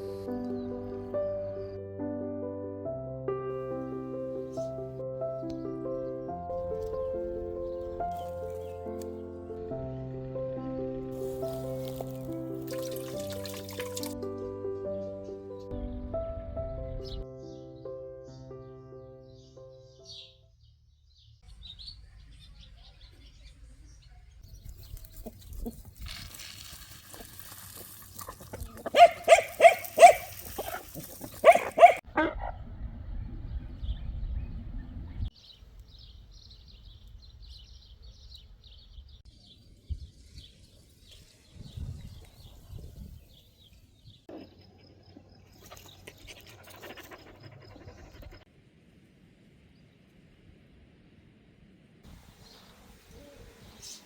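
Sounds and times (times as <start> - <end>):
rustling: 24.7 - 32.0
low rumbling: 32.0 - 35.3.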